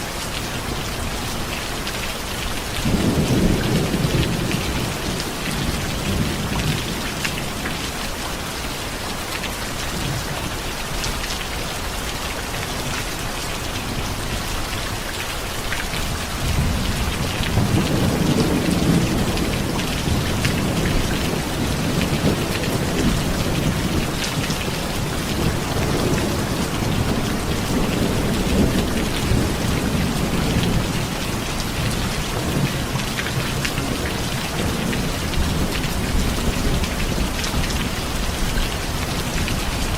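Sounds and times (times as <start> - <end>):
heavy rain falling: 0.0 - 39.9
low rolling thunder: 2.5 - 8.4, 16.0 - 39.9.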